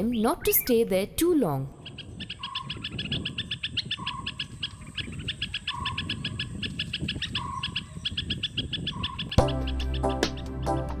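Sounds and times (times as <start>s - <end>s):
birds chirping: 0.0s - 11.0s
music: 9.4s - 11.0s.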